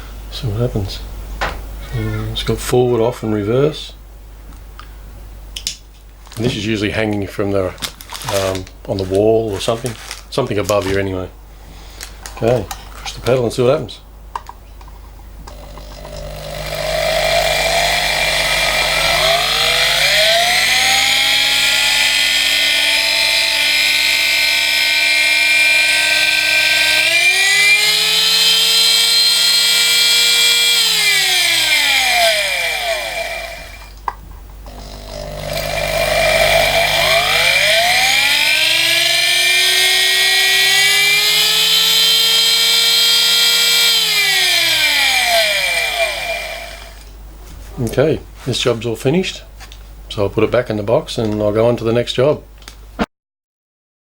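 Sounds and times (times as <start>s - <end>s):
die grinder motor whining: 15.5s - 34.0s, 34.7s - 47.1s.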